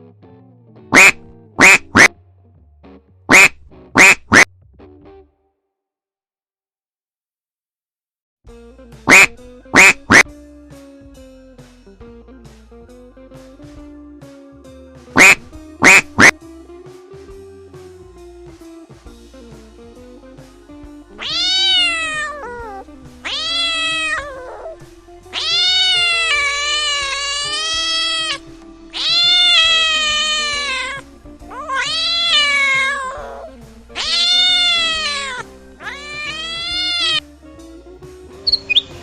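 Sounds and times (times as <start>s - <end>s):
background music: 8.5s - 39.0s
cat meowing: 21.2s - 37.2s.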